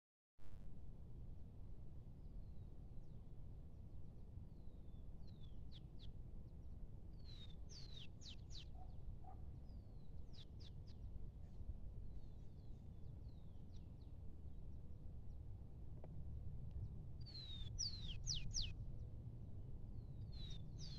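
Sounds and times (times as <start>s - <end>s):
faint low outdoor rumble: 0.4s - 20.9s
small bird chirping: 7.2s - 9.0s, 17.2s - 18.8s, 20.2s - 20.9s.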